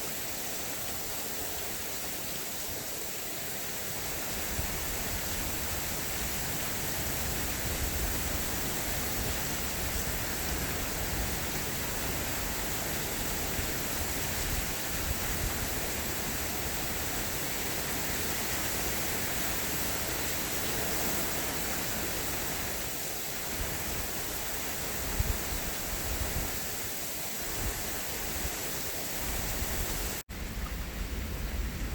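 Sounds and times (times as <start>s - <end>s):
heavy rain hissing: 0.0s - 31.9s.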